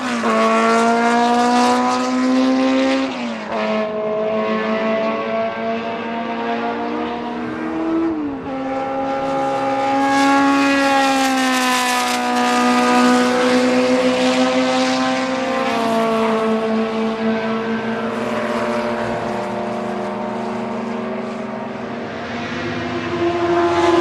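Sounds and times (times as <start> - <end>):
racing engine at high revs: 0.0 - 24.0.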